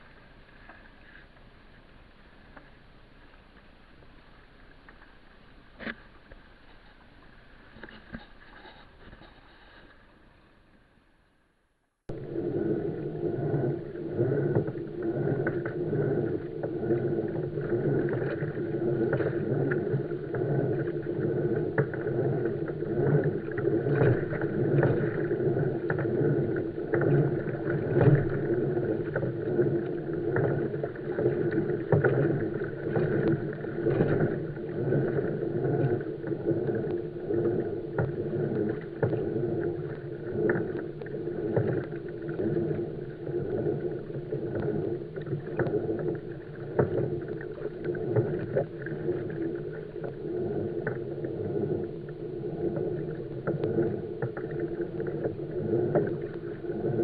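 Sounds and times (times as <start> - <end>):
water splashing against kayak hull: 12.1 - 57.0.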